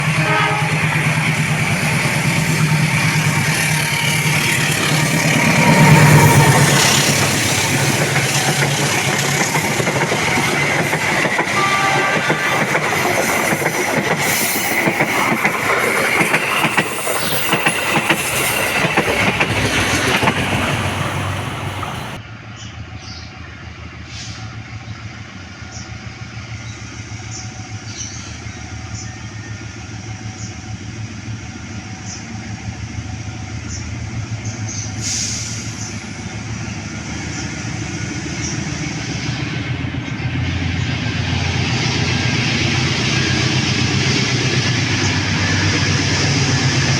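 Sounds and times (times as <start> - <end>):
train wagons clattering past: 0.0 - 22.2.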